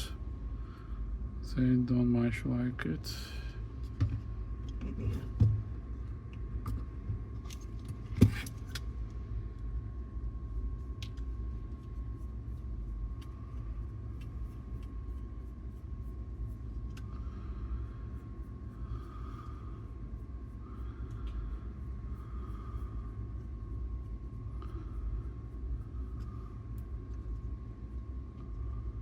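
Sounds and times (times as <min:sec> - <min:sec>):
steady low hum: 0:00.0 - 0:29.0
light clicks of small parts: 0:11.0 - 0:11.3.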